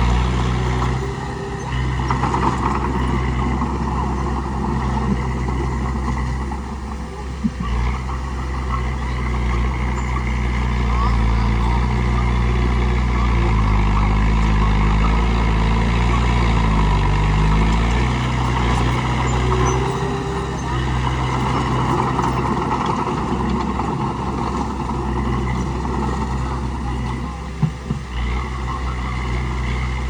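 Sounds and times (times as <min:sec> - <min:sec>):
bulldozer diesel engine: 0:00.0 - 0:30.0.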